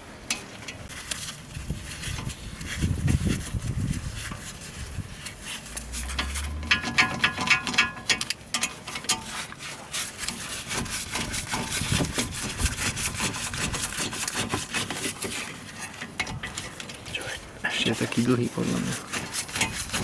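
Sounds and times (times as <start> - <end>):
metal scraping on metal: 1.8 - 20.0.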